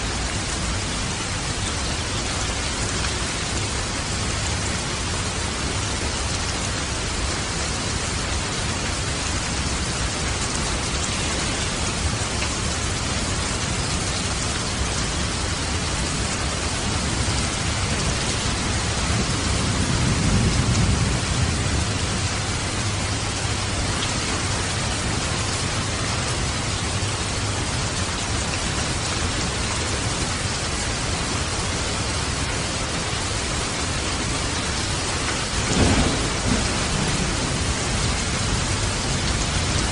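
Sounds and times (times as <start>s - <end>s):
steady rain falling: 0.0s - 39.9s
distant thunder rumbling: 16.7s - 23.8s, 35.4s - 39.9s.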